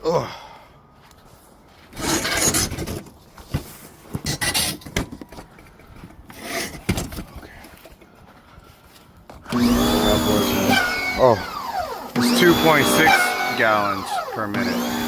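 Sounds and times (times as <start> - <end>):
objects rustling and scraping: 1.0 - 9.5.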